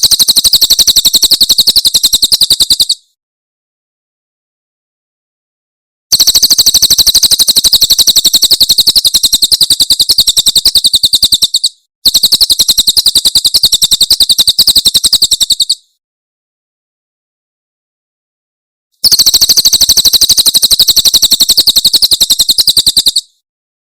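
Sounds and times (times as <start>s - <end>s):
bird singing rapid high notes: 6.1s - 15.9s, 19.0s - 23.3s.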